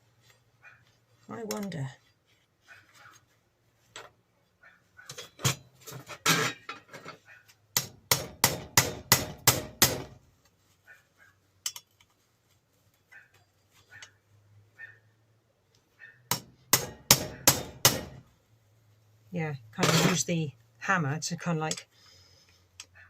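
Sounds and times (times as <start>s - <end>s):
hammer striking metal: 7.8s - 10.2s, 16.3s - 18.2s.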